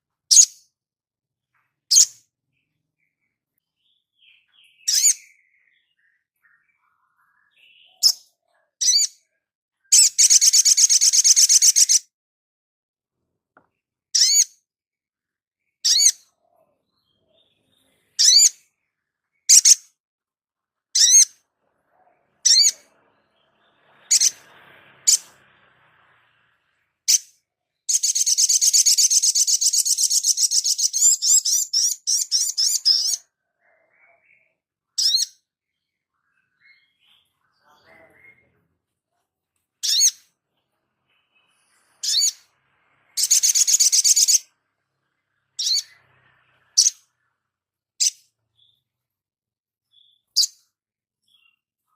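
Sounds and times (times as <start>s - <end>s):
bird chirping: 0.2s - 0.8s, 1.4s - 12.1s, 13.6s - 20.0s, 20.6s - 38.8s, 39.7s - 49.2s, 49.8s - 51.9s
bird trilling song: 0.3s - 0.8s, 1.5s - 12.1s, 13.6s - 20.0s, 20.8s - 38.6s, 39.8s - 49.1s, 49.8s - 51.9s.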